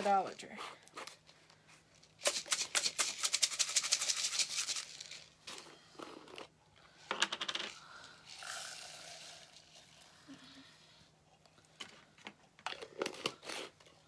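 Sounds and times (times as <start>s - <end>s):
small hard pieces rattling: 2.0s - 6.4s.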